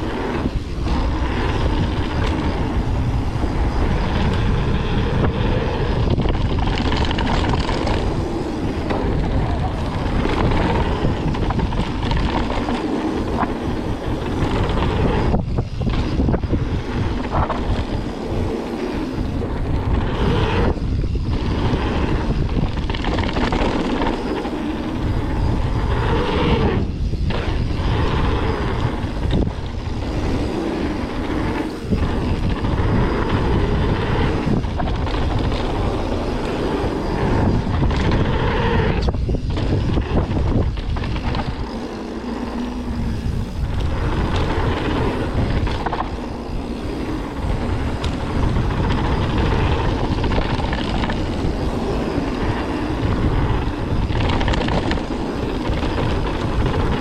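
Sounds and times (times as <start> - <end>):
bike tyres rumbling on dirt: 0.0 - 57.0
wind rushing on microphone: 0.0 - 57.0.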